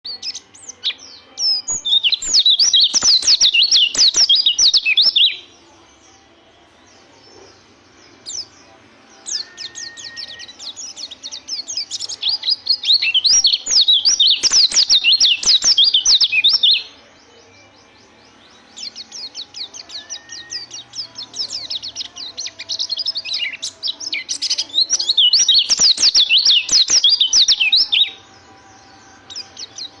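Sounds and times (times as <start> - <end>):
soft bird chirps: 0.0 - 5.4, 9.2 - 28.2
bird high rapid twittering: 2.1 - 5.2, 11.9 - 16.8, 24.3 - 28.0.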